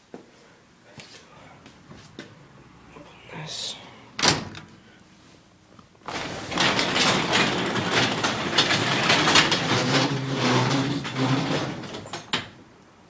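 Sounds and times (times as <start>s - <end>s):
garage door clunk: 4.2s - 4.8s, 6.0s - 12.7s
garage door rolling open: 4.2s - 4.9s, 6.0s - 12.8s.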